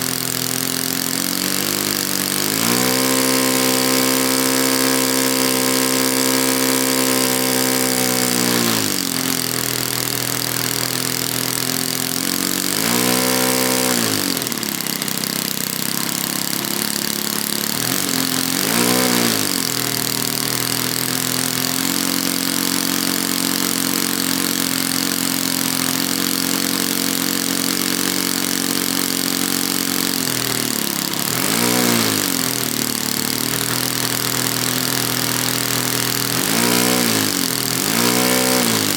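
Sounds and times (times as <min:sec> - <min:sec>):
model plane engine revving: 0:00.0 - 0:38.9.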